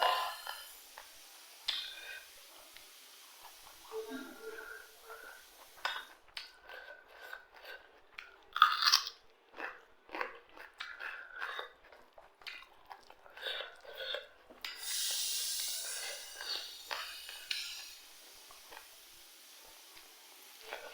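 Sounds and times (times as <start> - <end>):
steady hissing noise: 0.0 - 6.3, 14.7 - 20.9
person chewing crunchy food: 6.4 - 14.6.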